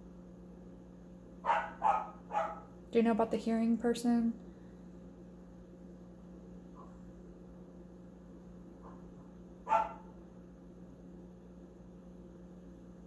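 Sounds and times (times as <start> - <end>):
low electrical hum: 0.0 - 13.0
dog barking: 1.4 - 2.7, 8.8 - 10.2.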